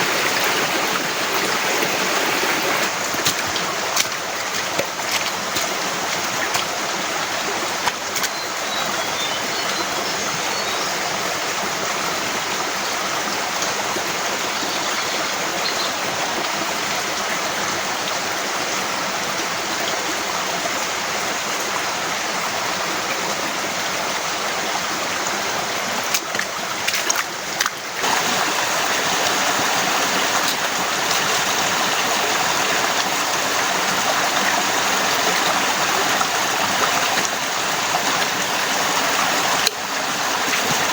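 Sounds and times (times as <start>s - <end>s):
heavy rain falling: 0.0s - 8.5s, 26.2s - 40.9s.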